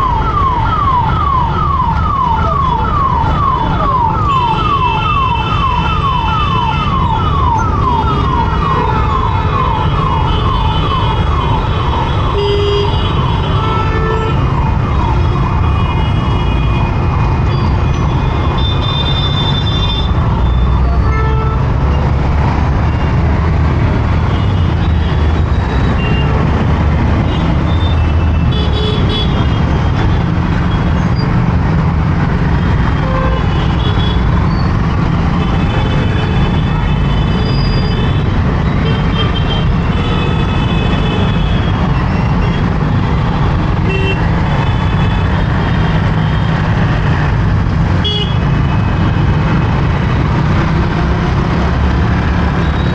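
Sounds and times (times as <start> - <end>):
vehicle horns honking: 48.0 - 48.6.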